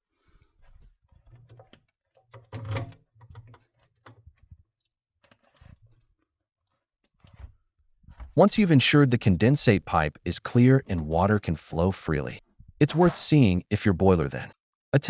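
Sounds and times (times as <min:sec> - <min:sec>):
hands handling clicks and knocks: 0:01.1 - 0:06.3.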